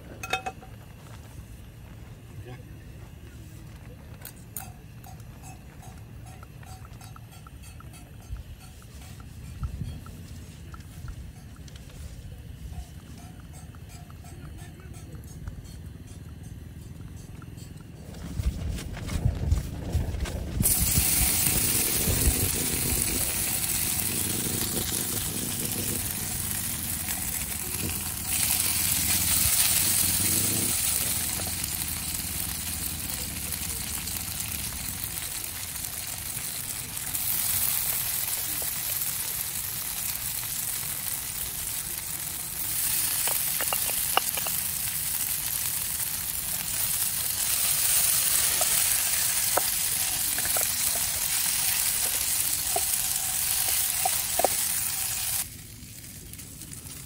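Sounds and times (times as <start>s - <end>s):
cheese cubes sizzling in oil: 20.6s - 57.0s.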